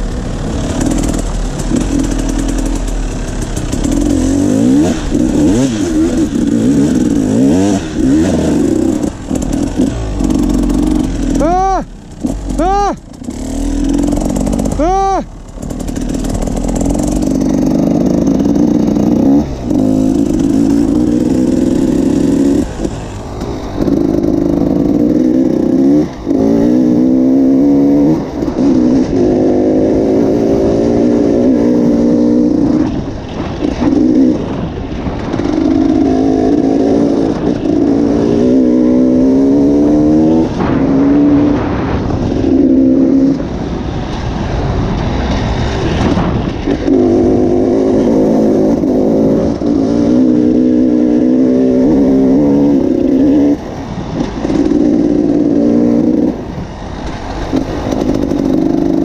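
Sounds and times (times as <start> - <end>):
dirt bike engine revving: 0.0 - 44.2, 45.0 - 59.0.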